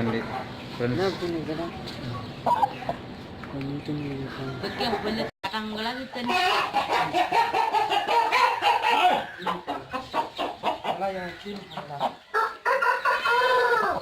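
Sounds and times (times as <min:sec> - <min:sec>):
rooster clucking: 0:04.5 - 0:14.0
rooster crowing: 0:12.3 - 0:14.0.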